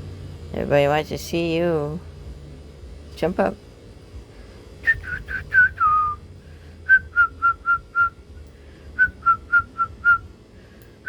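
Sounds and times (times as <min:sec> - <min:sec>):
person whistling: 0:04.8 - 0:06.2, 0:06.8 - 0:08.2, 0:09.0 - 0:10.2.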